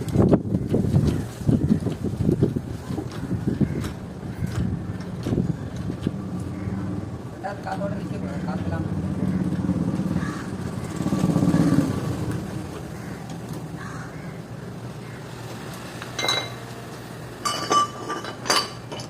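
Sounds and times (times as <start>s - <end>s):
metal tools clinking: 16.2s - 16.6s, 17.4s - 19.0s.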